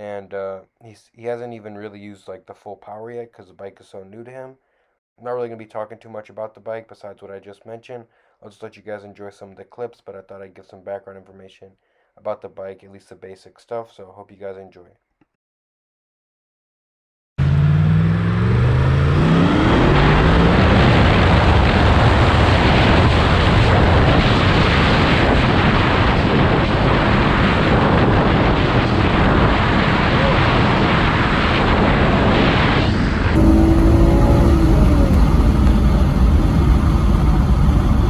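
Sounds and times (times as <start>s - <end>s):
motorcycle engine revving: 17.4s - 22.4s, 33.4s - 38.0s
wind noise: 19.4s - 38.0s.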